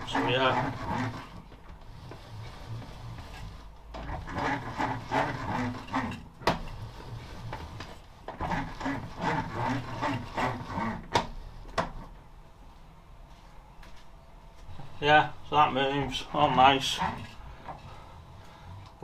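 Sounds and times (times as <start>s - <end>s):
lathe carriage rattling and rubbing: 0.0s - 12.3s, 14.6s - 19.0s
lathe carriage knocks: 2.8s - 12.0s.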